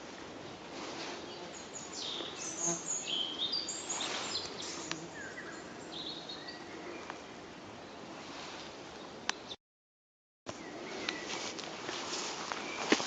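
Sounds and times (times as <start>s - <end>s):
songbirds singing: 1.2s - 8.1s, 10.5s - 11.6s, 12.5s - 13.0s.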